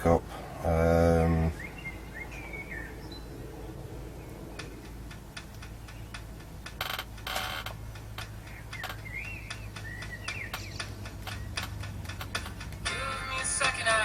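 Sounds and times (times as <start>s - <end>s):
steady low hum: 0.0s - 14.0s
bird chirping: 1.3s - 13.7s
light clicks and taps: 4.3s - 12.9s.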